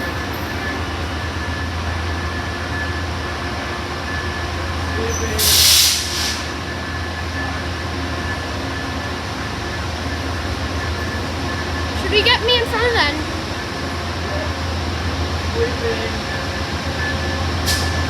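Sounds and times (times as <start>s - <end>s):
train cars rolling past: 0.0s - 18.0s
short burst of hiss: 5.4s - 6.5s.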